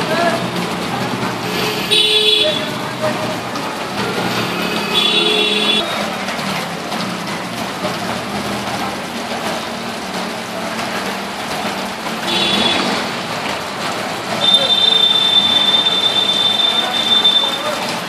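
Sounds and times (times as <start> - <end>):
vehicle engine hum: 0.0 - 17.0
traffic noise: 0.0 - 18.0
water washing: 0.0 - 18.0
car horn: 1.5 - 2.8, 4.2 - 6.0, 12.2 - 13.1, 14.4 - 17.9.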